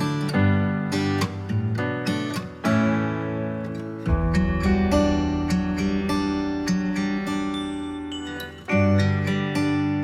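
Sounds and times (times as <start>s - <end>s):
acoustic guitar plucking: 0.0s - 10.0s
deep bass: 4.1s - 7.7s.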